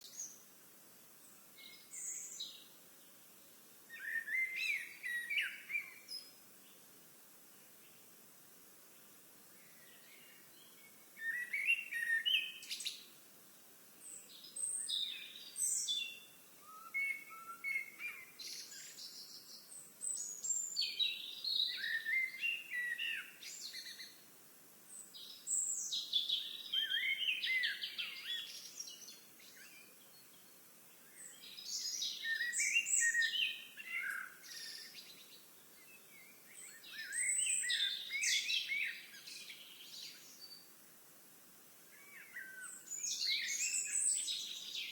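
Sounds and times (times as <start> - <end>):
songbird warbling: 31.5 - 35.0.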